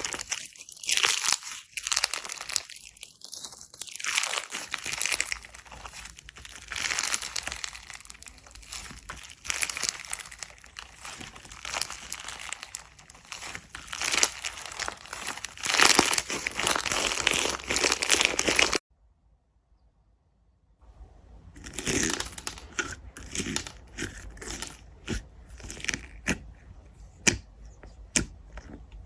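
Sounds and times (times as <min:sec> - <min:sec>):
slime crackling when squeezed: 0:00.0 - 0:18.8.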